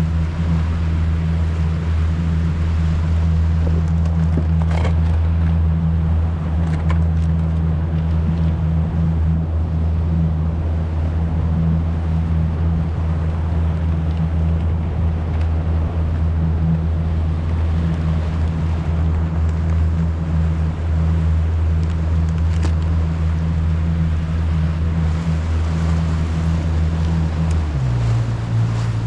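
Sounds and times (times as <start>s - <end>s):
boat motor droning: 0.0s - 29.0s.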